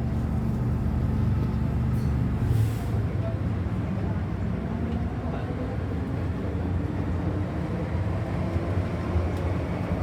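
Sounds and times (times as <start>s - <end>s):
train car low rumble: 0.0s - 3.4s.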